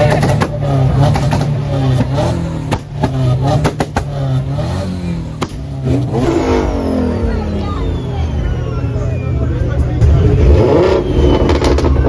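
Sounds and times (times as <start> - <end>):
car engines revving: 0.0 - 12.0
sharp pops: 5.4 - 6.0.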